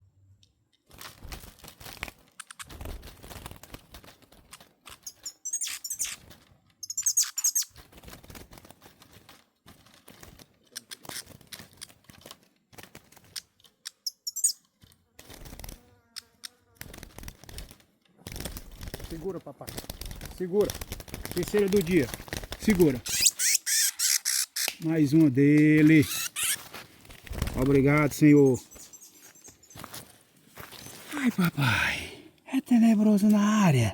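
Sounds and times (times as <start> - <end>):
rustling: 0.8 - 5.0, 7.7 - 13.8, 24.6 - 31.3
wing fluttering: 0.9 - 31.2
songbird chirping trills: 5.1 - 6.2, 6.8 - 7.7, 13.9 - 14.6, 28.2 - 30.0.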